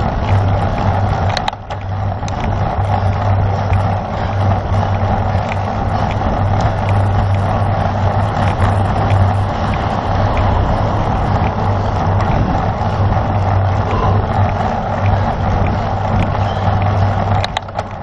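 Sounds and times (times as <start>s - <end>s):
bicycle tyre and road noise: 0.0s - 18.0s
wind rushing over microphone: 0.0s - 18.0s
faint ticks: 8.3s - 12.5s.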